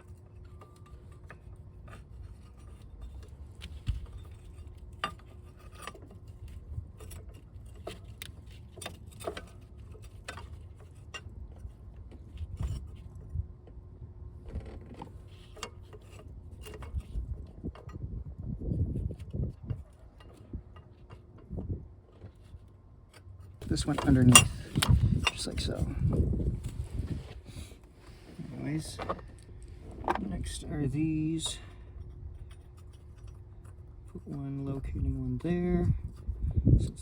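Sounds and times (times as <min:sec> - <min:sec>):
tools and engine parts clicking: 0:00.0 - 0:13.8, 0:14.6 - 0:18.1, 0:19.0 - 0:26.0, 0:27.8 - 0:34.4
faint steady hum: 0:00.0 - 0:37.0.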